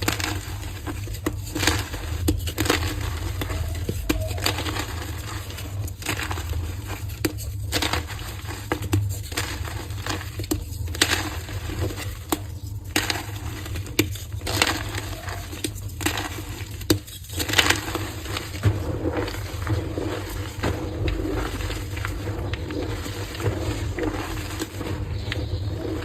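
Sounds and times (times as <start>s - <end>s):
chalk crunching and crumbling: 0.0s - 26.0s
low steady hum: 0.0s - 26.0s.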